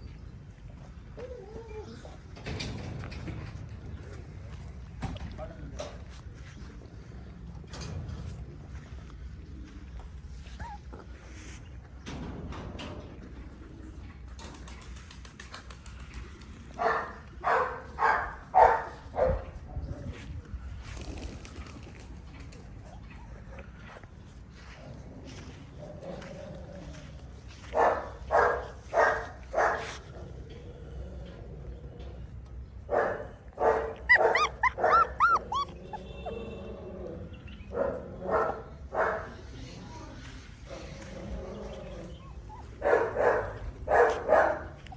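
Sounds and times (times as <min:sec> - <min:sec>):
dog barking: 0:16.8 - 0:19.5, 0:27.7 - 0:30.0, 0:32.9 - 0:36.6, 0:37.7 - 0:39.4, 0:42.8 - 0:44.8
high-pitched dog yelps: 0:33.9 - 0:36.4.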